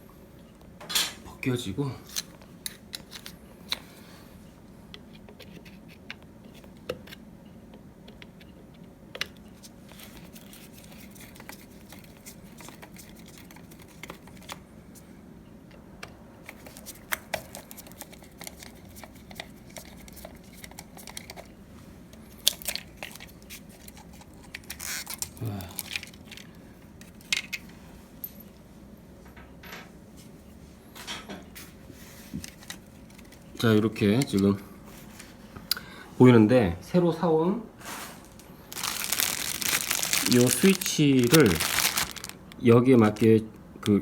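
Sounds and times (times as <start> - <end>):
plastic and metal parts clicking: 22.4 - 26.5.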